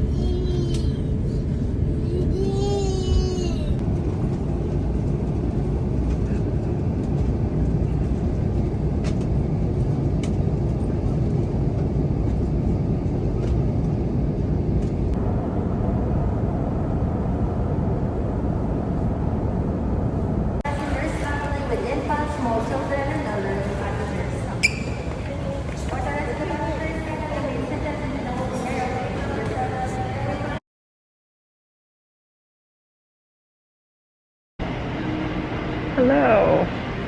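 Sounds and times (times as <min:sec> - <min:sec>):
airliner cabin rumble: 0:00.0 - 0:30.6.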